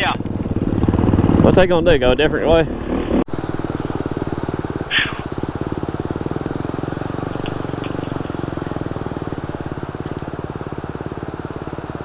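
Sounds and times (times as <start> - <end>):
dirt bike engine idling: 0.0 - 12.0.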